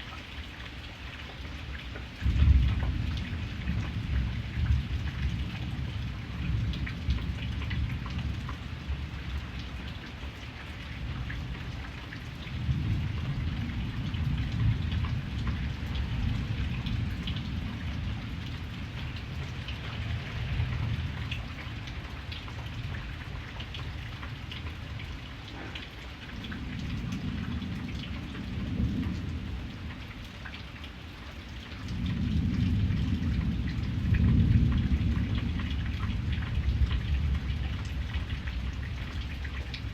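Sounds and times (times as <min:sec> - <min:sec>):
steady rain falling: 0:00.0 - 0:39.9
thunder rumbling: 0:02.2 - 0:09.4, 0:12.4 - 0:23.3, 0:25.8 - 0:29.9, 0:31.8 - 0:39.9.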